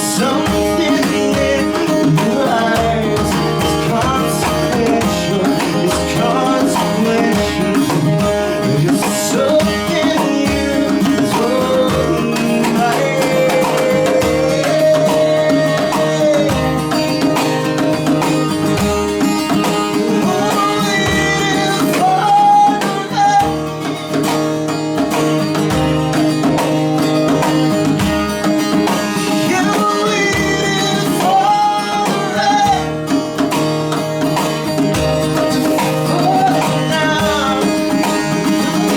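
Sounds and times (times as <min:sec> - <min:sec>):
person singing: 0:00.0 - 0:18.6, 0:19.4 - 0:24.1, 0:29.1 - 0:33.5, 0:35.2 - 0:38.9
guitar: 0:00.0 - 0:38.9
steady drum beat: 0:00.0 - 0:38.9.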